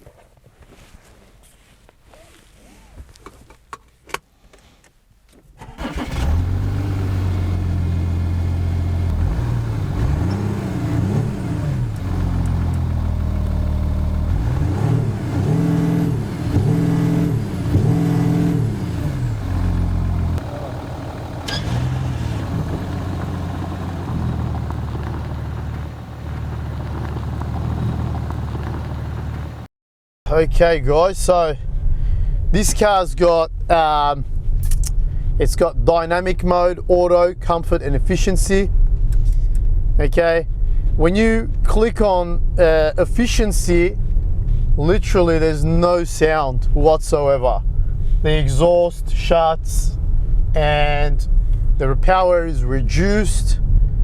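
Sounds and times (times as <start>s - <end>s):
car engine revving and idling: 5.8s - 29.7s.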